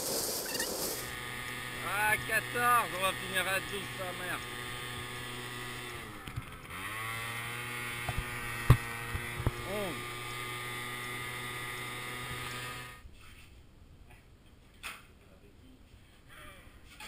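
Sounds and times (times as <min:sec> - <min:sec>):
small motorcycle engine droning: 0:00.6 - 0:13.0.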